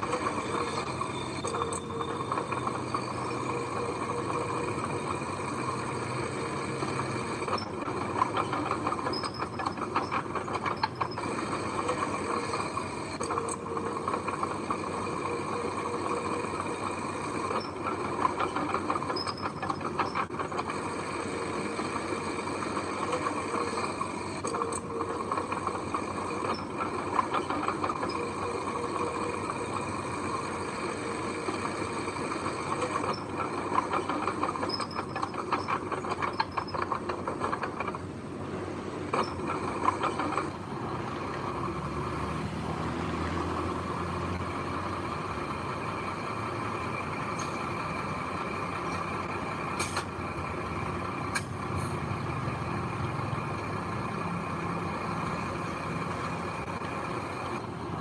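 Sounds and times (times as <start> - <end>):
machine engine running: 0.0 - 58.0.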